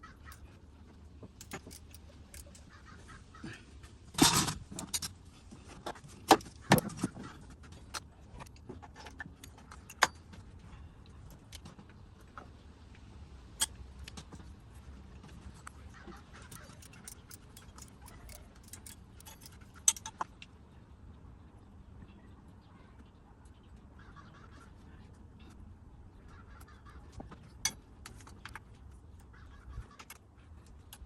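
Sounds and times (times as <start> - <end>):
metal tools clinking: 1.4 - 2.7, 16.4 - 20.2.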